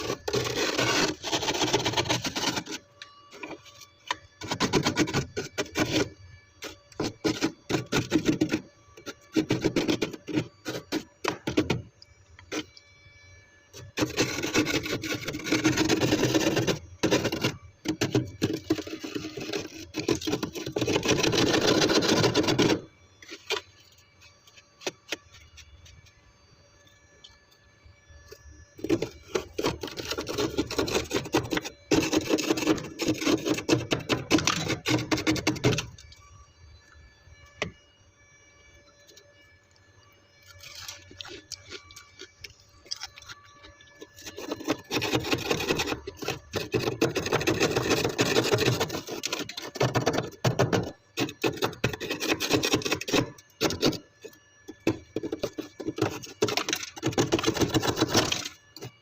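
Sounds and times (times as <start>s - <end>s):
frost scraped off freezer: 0.0s - 2.8s.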